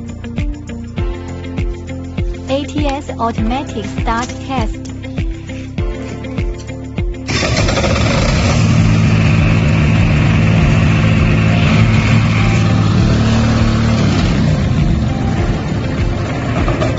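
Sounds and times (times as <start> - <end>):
diesel generator engine running: 7.0 - 16.9.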